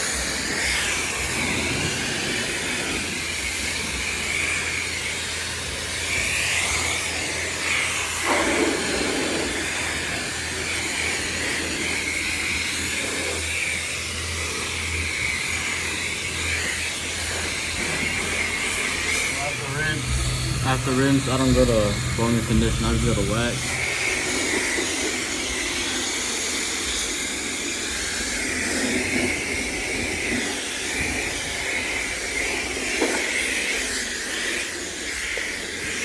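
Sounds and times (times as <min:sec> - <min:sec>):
pressure washer spray hissing: 0:00.0 - 0:36.0
low hum: 0:14.0 - 0:25.4.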